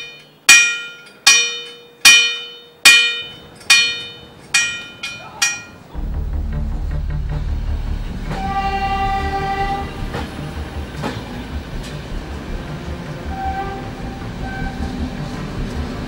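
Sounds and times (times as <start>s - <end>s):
locomotive rumbling: 0.0s - 16.0s
train cars knocking: 0.0s - 16.0s
train horn: 8.1s - 10.6s, 12.8s - 15.3s.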